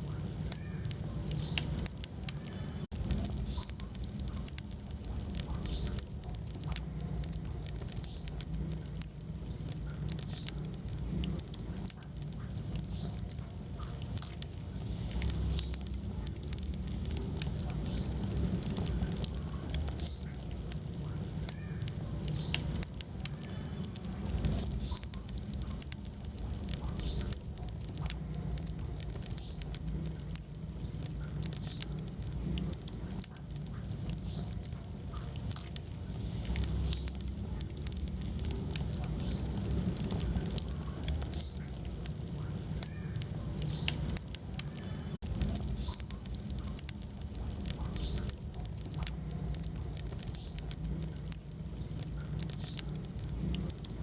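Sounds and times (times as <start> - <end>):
fire crackling and popping: 0.0 - 54.0
fire flames rumbling: 0.0 - 54.0.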